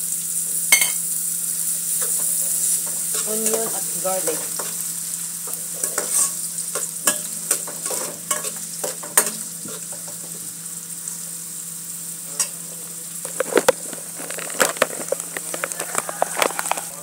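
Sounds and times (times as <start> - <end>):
onion and garlic sizzling in oil: 0.0 - 17.0
utensil scraping and tapping pan: 5.5 - 10.3, 13.3 - 16.9.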